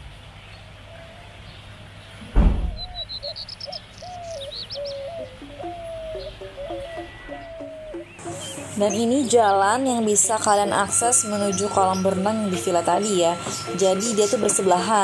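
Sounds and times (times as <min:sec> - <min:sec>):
birds chirping: 0:00.4 - 0:15.0
thump: 0:02.2 - 0:03.0
bird cooing: 0:02.7 - 0:09.2.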